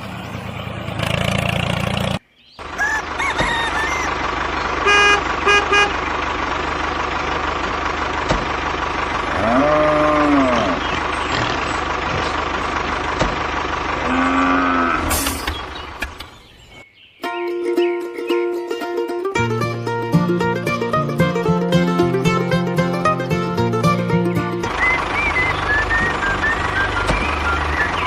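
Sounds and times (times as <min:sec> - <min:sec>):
vehicle engine hum: 0:00.0 - 0:16.9, 0:18.3 - 0:28.0
horn toots: 0:04.8 - 0:06.1.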